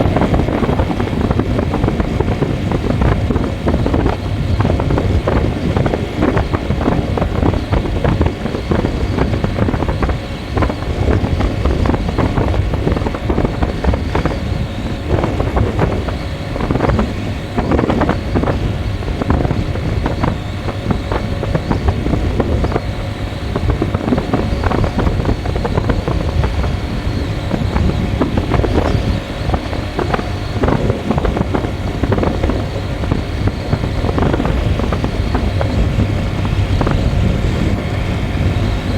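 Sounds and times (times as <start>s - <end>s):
vehicle engine and road noise: 0.0s - 38.9s
wind buffeting microphone: 0.0s - 38.9s.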